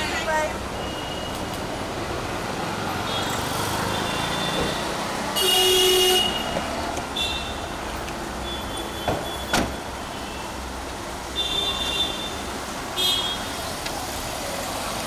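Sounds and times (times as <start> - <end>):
street traffic noise: 0.0 - 15.0
car horn blast: 5.4 - 6.6.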